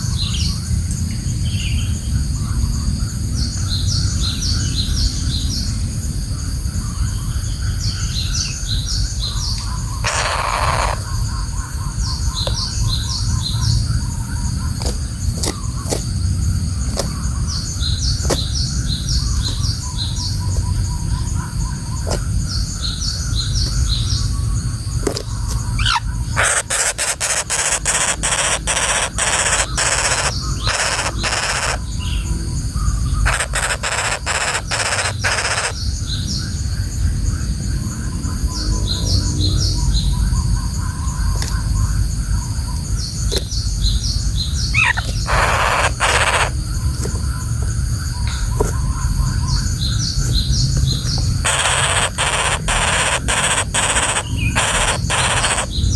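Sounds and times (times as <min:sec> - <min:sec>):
birds chirping: 0:06.7 - 0:55.9
woodpecker rattling calls: 0:09.2 - 0:16.0, 0:16.7 - 0:32.3, 0:33.0 - 0:35.9, 0:43.4 - 0:55.9.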